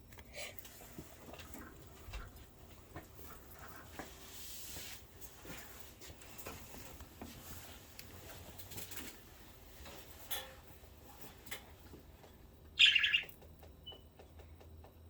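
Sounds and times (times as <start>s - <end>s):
budgerigar chirps: 12.8s - 13.3s
small clicks and taps: 13.2s - 15.0s.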